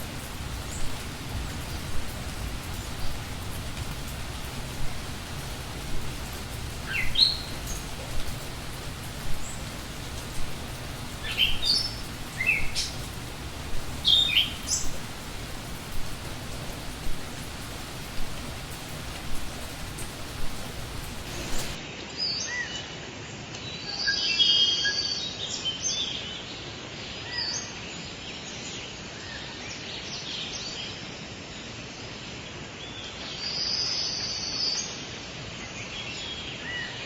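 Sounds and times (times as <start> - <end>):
birds calling: 0.0 - 21.8
birds chirping: 0.0 - 21.8
steady hiss: 0.0 - 21.9.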